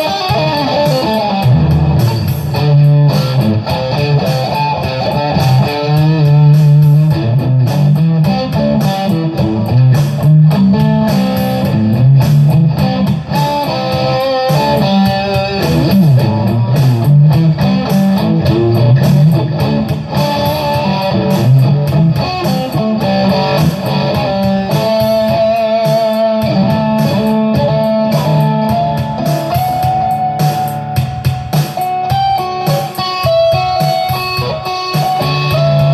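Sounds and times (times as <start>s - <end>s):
electric guitar lead lines: 0.0s - 35.9s.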